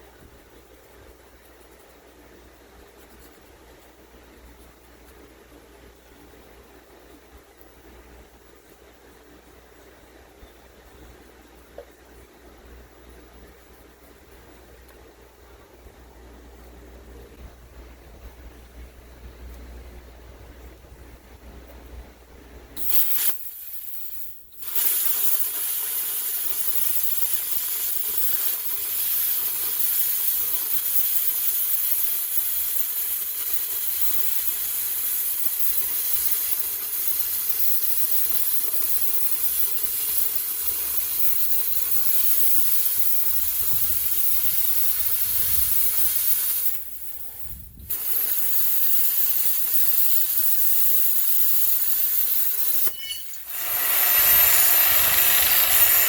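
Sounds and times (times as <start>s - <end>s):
electric arc hissing on steel: 22.8s - 56.0s.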